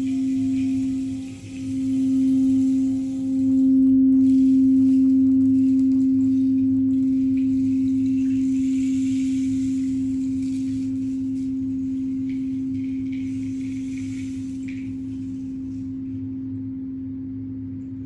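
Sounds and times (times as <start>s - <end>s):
low steady ringing tone: 0.0s - 18.0s.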